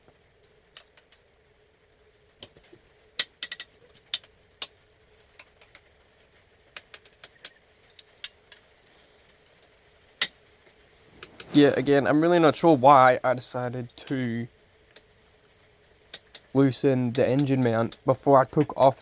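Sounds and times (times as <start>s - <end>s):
faint steady hum: 0.0s - 19.0s
tools and metal parts clicking: 3.2s - 4.3s, 16.1s - 18.8s.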